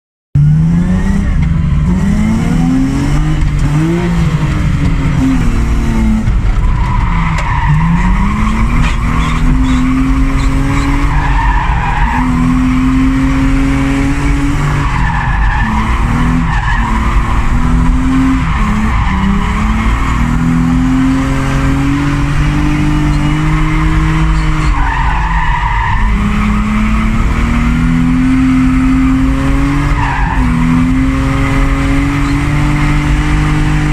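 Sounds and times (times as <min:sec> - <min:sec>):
car engine revving: 0:00.4 - 0:33.9
tyres squealing: 0:06.8 - 0:12.3.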